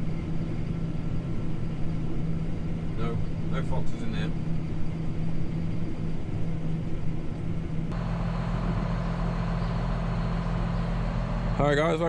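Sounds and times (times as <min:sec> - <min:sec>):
engine with deeper hum: 0:00.0 - 0:12.0
farm machinery diesel engine: 0:00.0 - 0:12.0.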